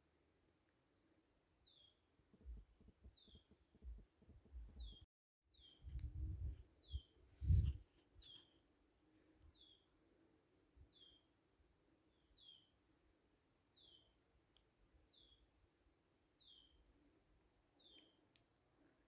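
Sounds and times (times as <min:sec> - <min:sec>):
low rumbling thumps: 0:05.9 - 0:06.6.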